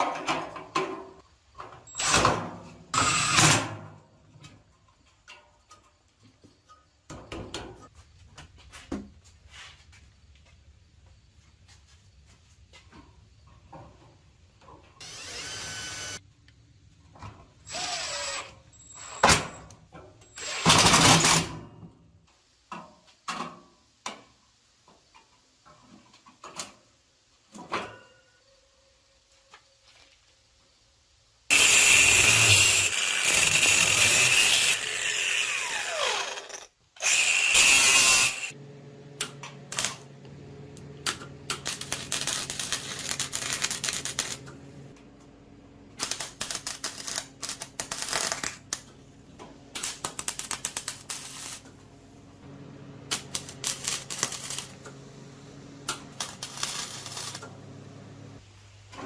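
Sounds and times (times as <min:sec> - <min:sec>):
power drill running: 0:01.9 - 0:02.3, 0:03.0 - 0:03.5, 0:15.0 - 0:16.2, 0:17.7 - 0:19.6, 0:20.4 - 0:21.2, 0:31.5 - 0:38.6.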